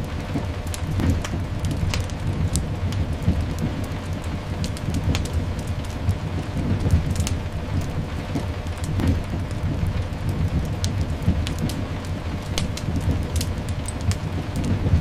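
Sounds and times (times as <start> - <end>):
low rumble: 0.0 - 15.0
sharp crackles: 0.0 - 15.0
steady rain: 0.0 - 15.0.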